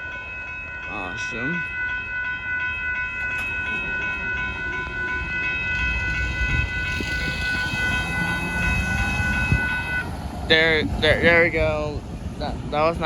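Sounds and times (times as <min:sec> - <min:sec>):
passenger train rolling past: 0:00.0 - 0:13.0
steady high ringing tone: 0:00.0 - 0:13.0
train wheel clicks: 0:02.6 - 0:11.0.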